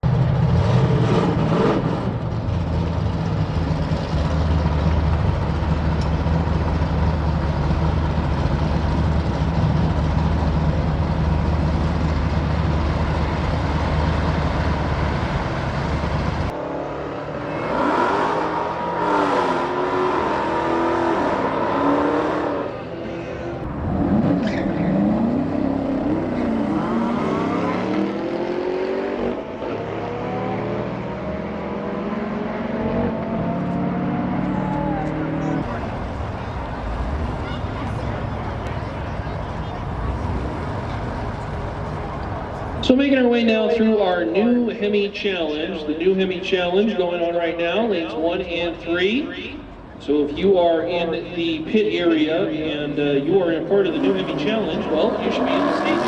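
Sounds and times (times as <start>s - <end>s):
deep engine rumble: 0.0s - 16.6s, 23.1s - 28.8s, 32.9s - 56.0s
engines accelerating hard: 0.0s - 56.0s.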